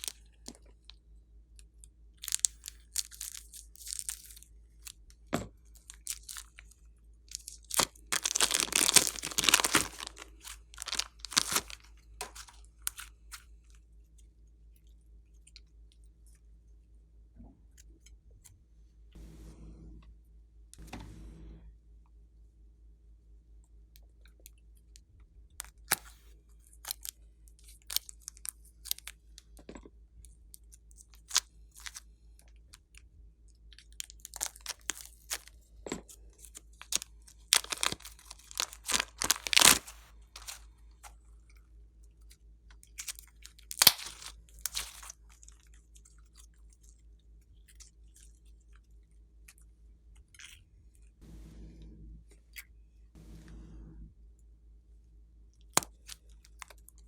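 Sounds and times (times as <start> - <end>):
slime clicking and crackling: 7.3 - 13.1, 36.8 - 40.6, 43.0 - 45.6.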